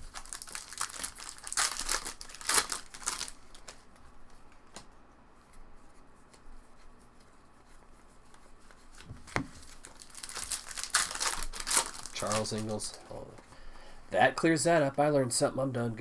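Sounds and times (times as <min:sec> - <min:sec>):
trading cards rustling: 0:00.0 - 0:04.8, 0:06.2 - 0:13.6.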